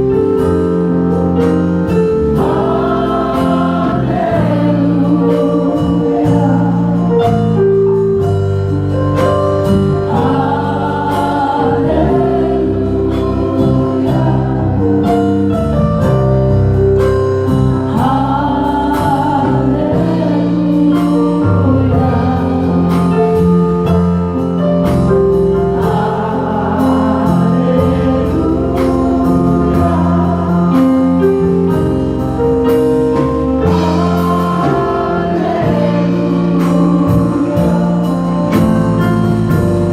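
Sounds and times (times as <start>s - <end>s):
band playing: 0.0s - 39.9s
bass line: 0.0s - 39.9s
drums beat: 0.1s - 7.3s, 8.4s - 14.6s, 21.7s - 39.9s
choir singing: 2.0s - 7.2s, 9.9s - 15.2s, 17.9s - 23.4s, 25.5s - 31.8s, 33.6s - 39.6s.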